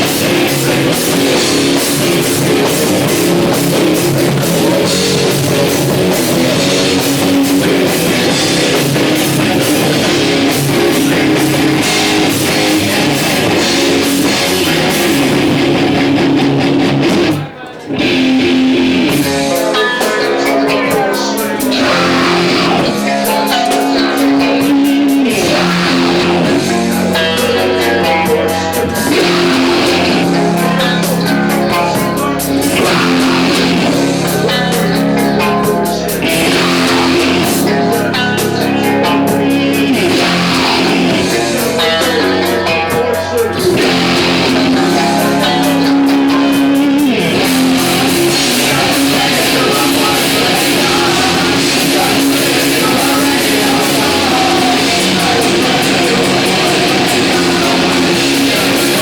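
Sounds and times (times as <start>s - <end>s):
instrumental rock music: 0.0s - 59.0s.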